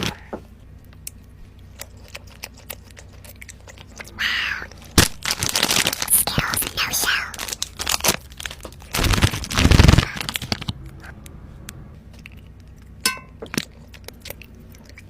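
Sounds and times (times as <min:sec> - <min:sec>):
candy crackling while eaten: 0:00.8 - 0:11.1, 0:12.1 - 0:15.0.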